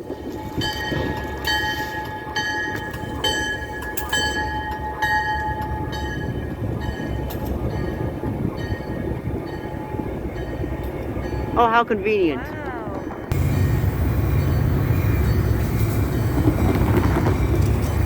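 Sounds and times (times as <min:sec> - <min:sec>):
locomotive bell ringing: 0:00.0 - 0:18.0
train rumbling past: 0:00.0 - 0:18.0.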